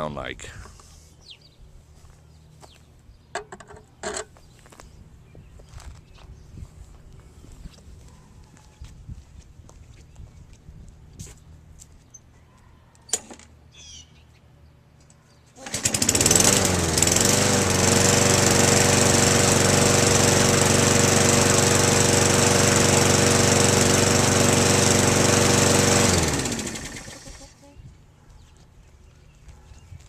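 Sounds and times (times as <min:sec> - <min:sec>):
lawnmower engine running: 0:15.6 - 0:27.6.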